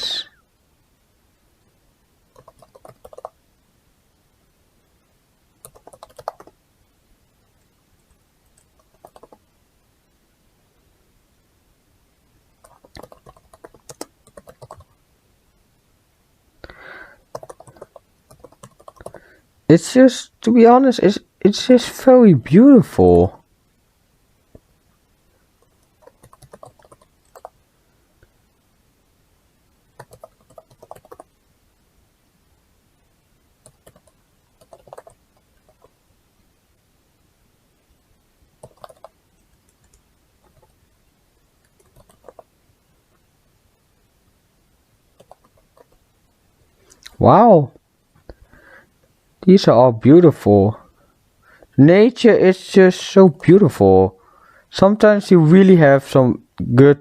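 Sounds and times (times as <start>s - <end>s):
typing on computer keyboard: 2.3s - 3.4s, 5.6s - 6.6s, 8.6s - 9.4s, 12.6s - 14.9s, 17.2s - 19.2s, 26.0s - 27.6s, 30.0s - 31.3s, 33.6s - 35.9s, 38.6s - 40.7s, 41.6s - 42.5s, 45.2s - 46.0s.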